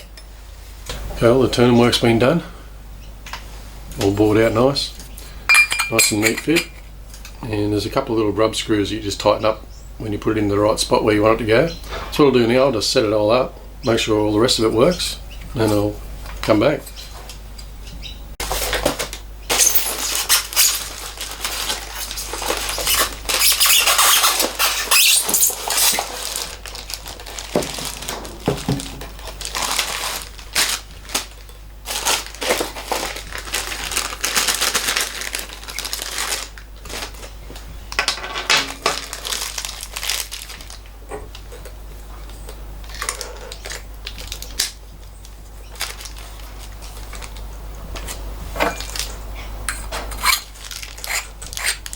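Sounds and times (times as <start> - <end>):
metal tools clinking and rattling: 5.5 - 6.8
scraping and rustling: 18.4 - 44.6.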